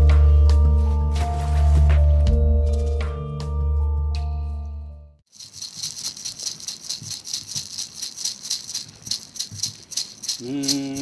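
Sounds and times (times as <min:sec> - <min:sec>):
handheld rattle shaken: 0:05.3 - 0:11.0.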